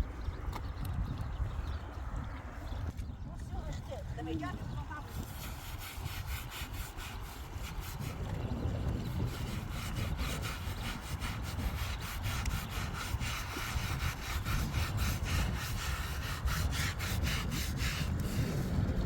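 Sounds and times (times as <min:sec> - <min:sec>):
hand scrubbing wet fabric: 0:04.9 - 0:18.7.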